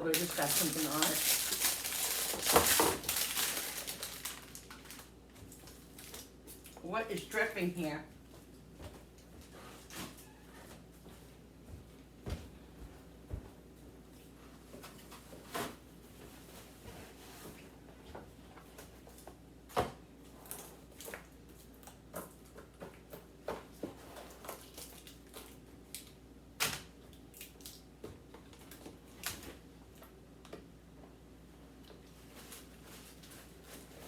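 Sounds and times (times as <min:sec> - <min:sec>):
plastic containers clicking and knocking: 0:00.2 - 0:05.0.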